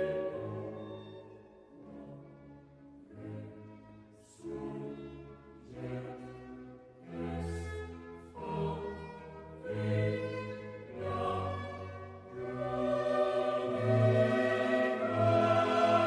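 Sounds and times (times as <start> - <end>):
choir singing: 0.0 - 2.2, 7.1 - 16.0
orchestral music: 9.4 - 16.0.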